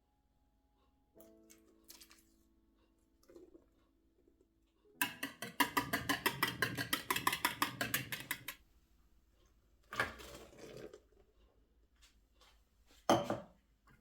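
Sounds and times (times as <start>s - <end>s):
utensil whisking in a bowl: 5.0s - 8.6s.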